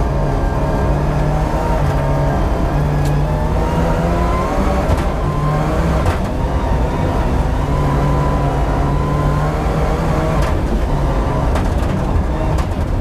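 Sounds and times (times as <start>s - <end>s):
rally car engine pulling hard: 0.0s - 13.0s
sharp clicks and knocks: 6.0s - 6.4s, 10.3s - 13.0s.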